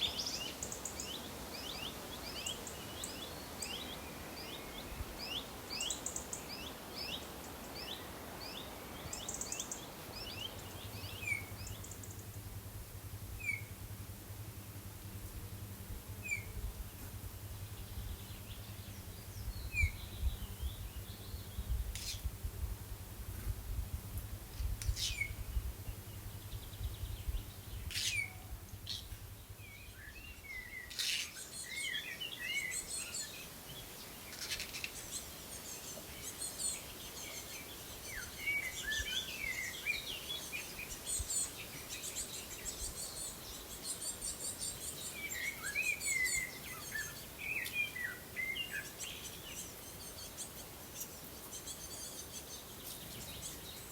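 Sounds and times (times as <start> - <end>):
songbirds chirping and trilling: 0.0 - 53.9
low steady hum: 9.7 - 31.8.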